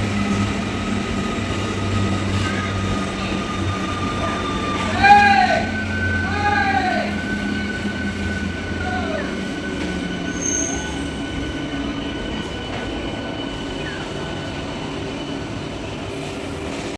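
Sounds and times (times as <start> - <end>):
train wheels rumbling on track: 0.0 - 16.9
high-pitched wheel squeal: 2.4 - 11.5.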